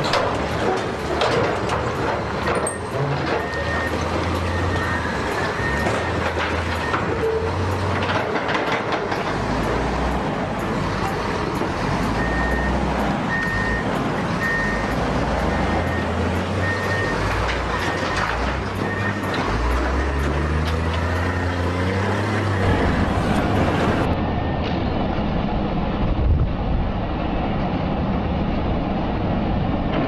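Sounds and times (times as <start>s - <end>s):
machinery clanks and knocks: 0.0s - 25.2s, 29.8s - 30.0s
heavy construction machinery running: 0.0s - 30.0s
reversing alarm beeping: 2.4s - 8.0s, 9.5s - 24.8s.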